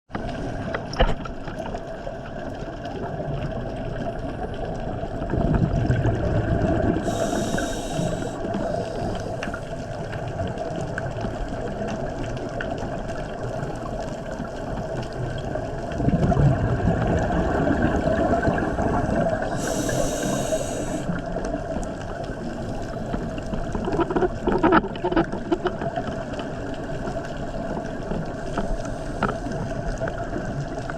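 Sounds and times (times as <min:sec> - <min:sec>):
steady underwater hum: 0:00.1 - 0:30.9
exhale bubbles underwater: 0:00.2 - 0:30.9
regulator inhale hiss: 0:07.0 - 0:10.0, 0:18.2 - 0:21.2, 0:28.4 - 0:29.9.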